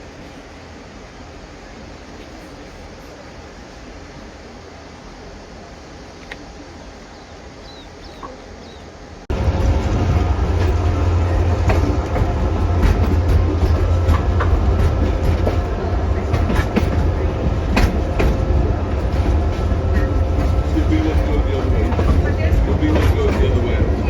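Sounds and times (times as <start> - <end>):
train rumbling on track: 0.0 - 24.0
train wheel clicks and rattles: 9.3 - 24.0.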